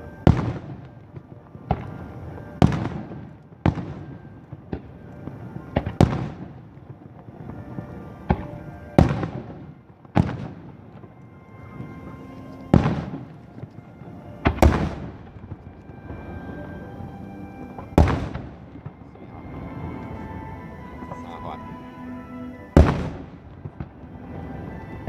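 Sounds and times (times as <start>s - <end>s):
fireworks booming: 0.0s - 25.0s
show music: 11.4s - 25.0s.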